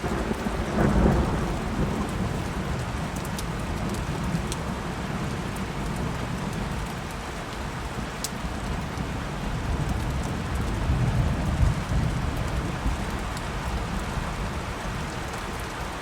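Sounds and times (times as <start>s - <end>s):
low thunder rumble: 0.0s - 6.7s, 8.9s - 15.0s
steady rain falling: 0.0s - 16.0s.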